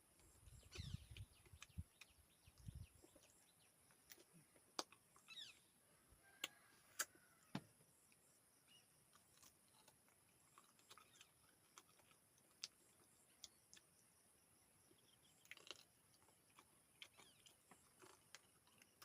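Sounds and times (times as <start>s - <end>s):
chewing clicks and smacks: 0.2s - 5.4s, 9.0s - 14.2s, 14.8s - 19.0s.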